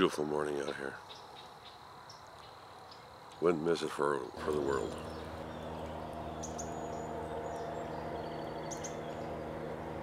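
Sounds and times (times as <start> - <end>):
low steady hum: 4.3 - 10.0
high bird chirps: 4.4 - 10.0.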